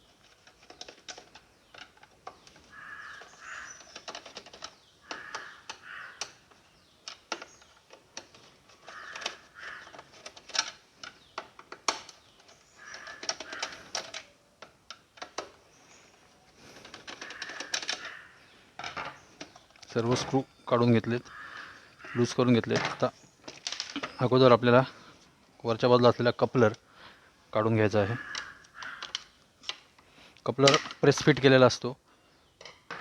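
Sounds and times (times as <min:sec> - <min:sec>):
screw creaking: 0:00.0 - 0:24.9, 0:28.0 - 0:29.3.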